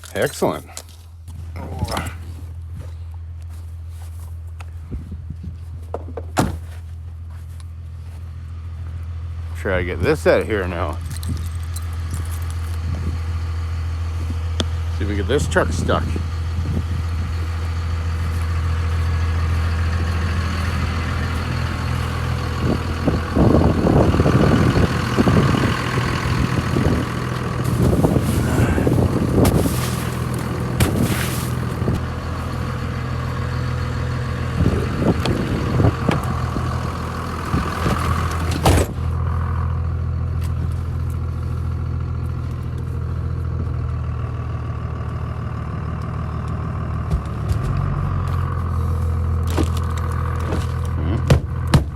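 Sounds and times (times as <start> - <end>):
pickup truck engine running: 0.0 - 51.9
clatter: 10.8 - 13.0.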